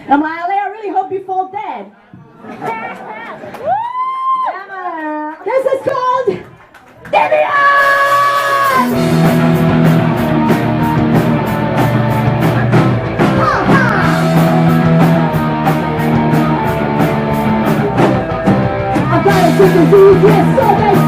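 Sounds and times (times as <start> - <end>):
punk rock band playing live: 7.9 - 21.0
sliding guitar notes: 8.8 - 21.0.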